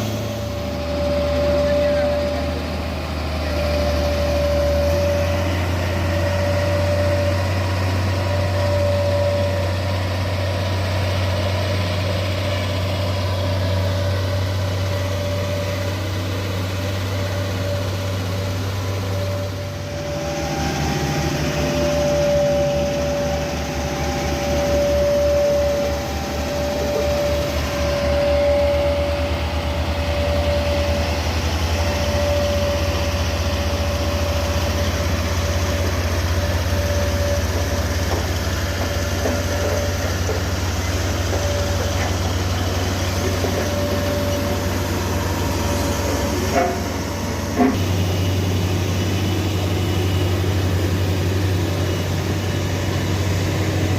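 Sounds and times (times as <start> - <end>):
heavy diesel engine running: 0.0 - 53.9
mid-pitched tone: 17.2 - 37.5.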